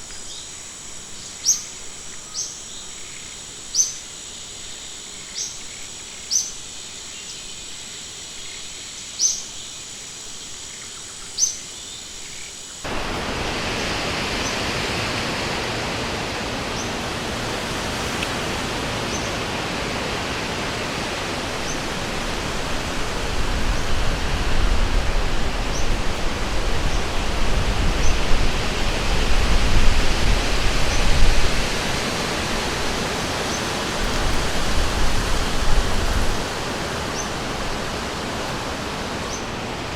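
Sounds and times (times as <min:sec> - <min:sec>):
insects trilling: 0:00.0 - 0:39.8
river water rushing: 0:12.8 - 0:39.9.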